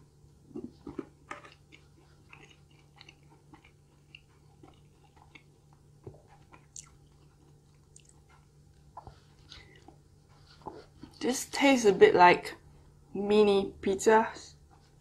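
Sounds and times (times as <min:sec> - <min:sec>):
close chewing with mouth clicks: 0:00.2 - 0:11.3.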